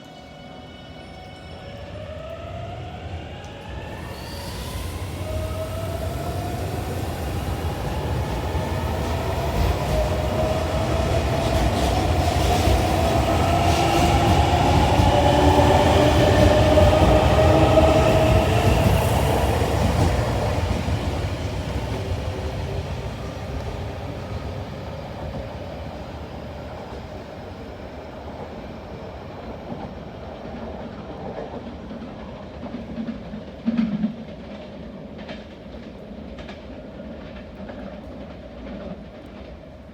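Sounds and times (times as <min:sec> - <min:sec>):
electric train motor whine: 0:01.1 - 0:23.8
wheels rumbling and clacking on rails: 0:01.3 - 0:39.9.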